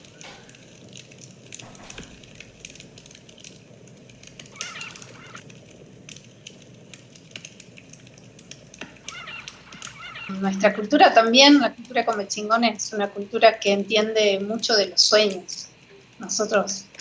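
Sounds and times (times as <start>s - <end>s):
bird warbling chirps: 4.5s - 5.4s, 9.0s - 10.8s
irregular crackles and clicks: 4.5s - 5.4s.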